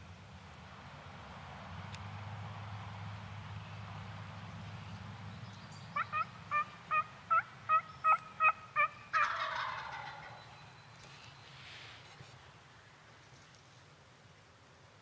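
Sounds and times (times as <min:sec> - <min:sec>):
turkey yelps: 0:06.0 - 0:10.4
turkey gobble: 0:06.0 - 0:10.6.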